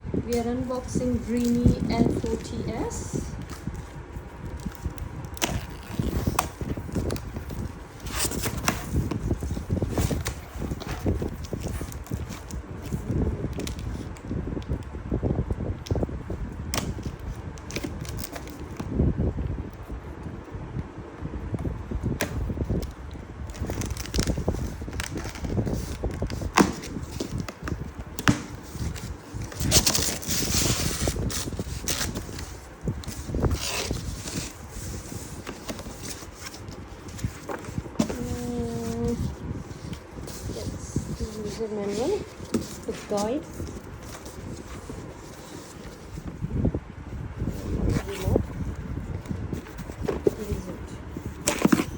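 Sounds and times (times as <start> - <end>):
cardboard scraping rustles: 0.6 - 14.1, 23.4 - 51.9
cardboard knocks and bumps: 25.0 - 31.0.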